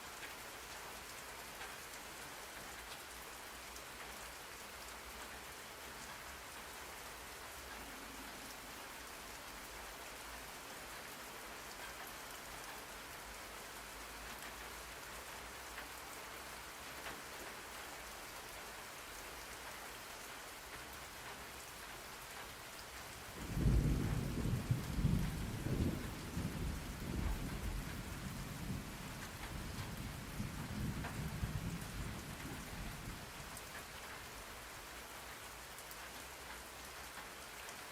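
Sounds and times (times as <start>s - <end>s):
thunder rumbling: 23.4s - 33.3s.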